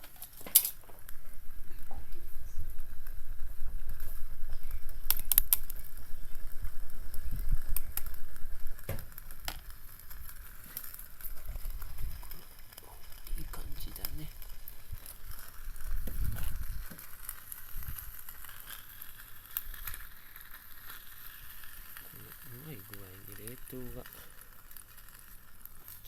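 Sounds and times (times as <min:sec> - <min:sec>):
wood fire crackling: 0:00.0 - 0:26.0
wind rumbling on microphone: 0:01.0 - 0:10.6, 0:11.2 - 0:18.4.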